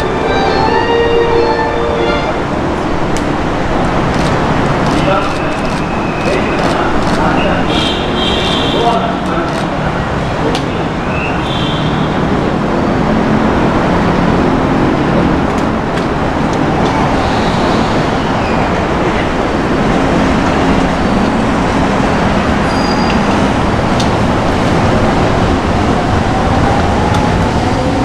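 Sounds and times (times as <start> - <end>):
electric train rumbling: 0.0 - 28.0.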